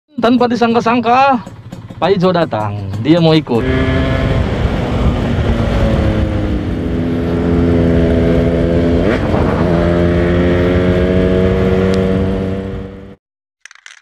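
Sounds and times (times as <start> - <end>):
motorcycle engine idling: 0.2 - 3.6.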